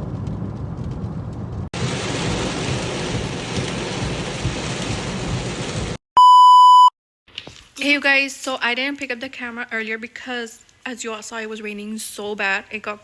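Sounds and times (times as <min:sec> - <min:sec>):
heavy rain hissing: 0:01.8 - 0:06.0.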